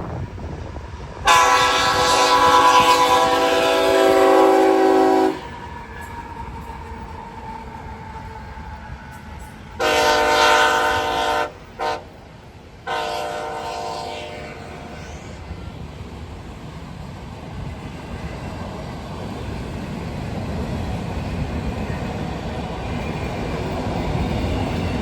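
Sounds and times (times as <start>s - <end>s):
train rumble: 0.0s - 25.0s
locomotive air horn blasts: 1.2s - 5.6s, 9.8s - 12.2s, 12.8s - 15.3s.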